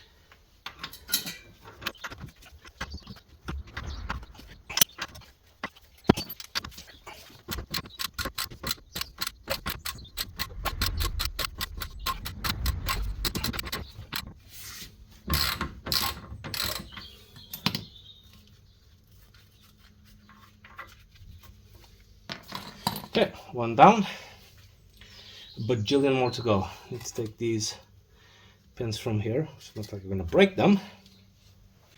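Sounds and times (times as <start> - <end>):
metal tools clanking: 0.6 - 3.0, 3.7 - 14.3.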